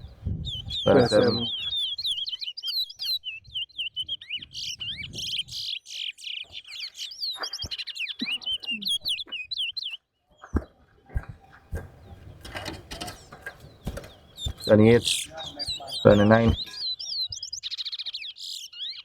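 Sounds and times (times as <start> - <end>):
finch twittering chirps: 0.0 - 10.7, 11.3 - 19.0
dull knocks: 11.2 - 16.8.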